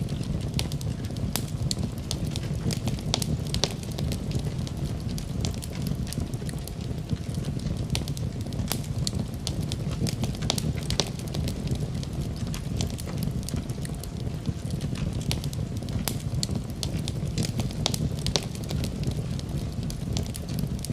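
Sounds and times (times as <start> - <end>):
low rumble of flames: 0.0 - 20.9
wood fire crackling and popping: 0.0 - 20.9.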